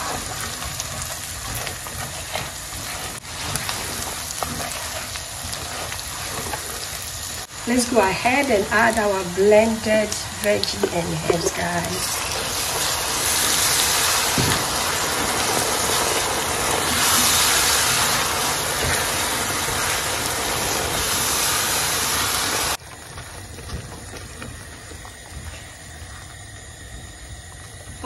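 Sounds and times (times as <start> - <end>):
spatula stirring: 0.0 - 7.6, 10.1 - 21.4
paste sizzling in hot oil: 0.0 - 28.0.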